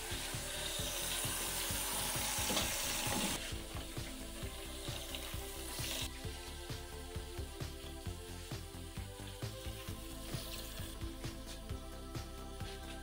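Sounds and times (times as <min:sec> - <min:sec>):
tap water running into sink: 0:00.0 - 0:06.4
background music with beat: 0:00.0 - 0:13.0.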